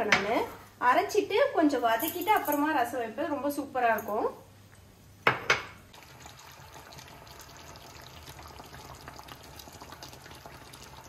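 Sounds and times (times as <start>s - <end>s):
pots simmering on a stove: 4.6s - 11.0s.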